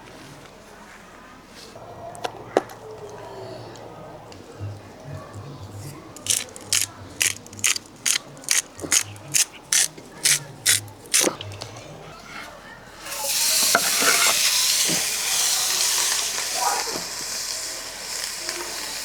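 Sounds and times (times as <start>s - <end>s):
food sizzling in hot pan: 13.1s - 19.0s.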